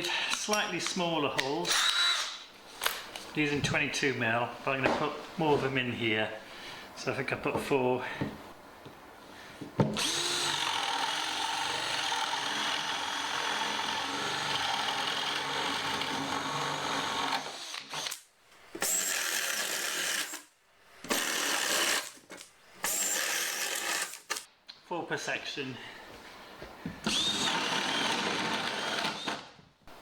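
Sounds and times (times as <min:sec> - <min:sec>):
power drill boring through plywood: 0:01.7 - 0:02.4, 0:10.0 - 0:18.2, 0:18.8 - 0:20.4, 0:21.0 - 0:22.2, 0:22.8 - 0:24.4, 0:27.0 - 0:29.6.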